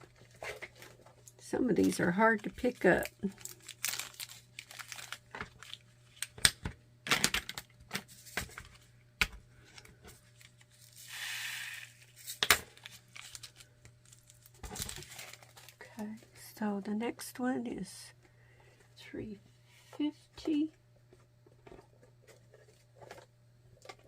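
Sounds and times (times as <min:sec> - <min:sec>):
plastic bags crinkling: 0:00.1 - 0:06.5, 0:12.0 - 0:16.1.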